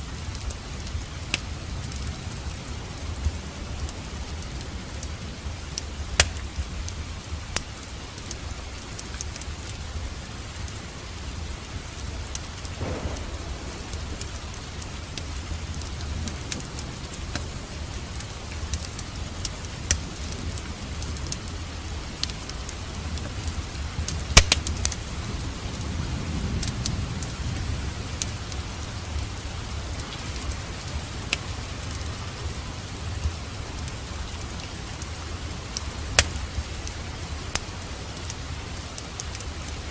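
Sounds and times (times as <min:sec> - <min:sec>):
steady rain: 0:00.0 - 0:39.9
wood fire crackling: 0:00.0 - 0:39.9
low rumble of thunder: 0:11.9 - 0:33.4.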